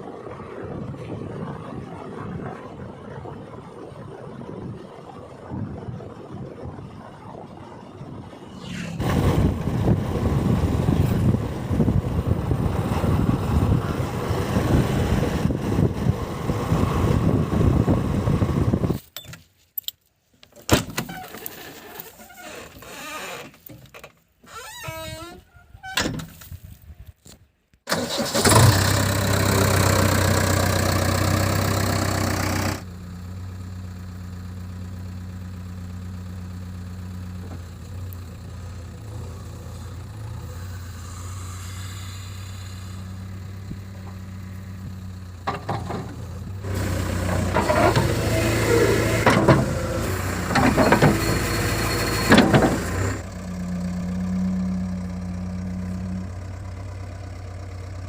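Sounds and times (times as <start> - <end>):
heavy diesel engine running: 0.0 - 18.9, 27.9 - 58.0
metal clanks and knocks: 45.4 - 46.3.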